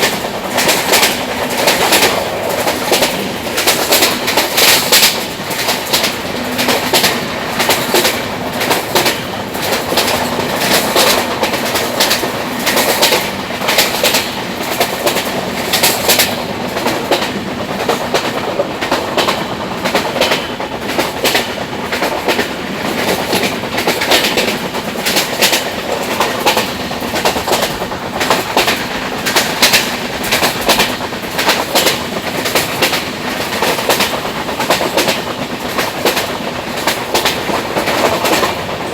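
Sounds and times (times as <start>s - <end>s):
train rolling noise: 0.0s - 38.9s
train wheels clicking over rail joints: 0.0s - 38.9s.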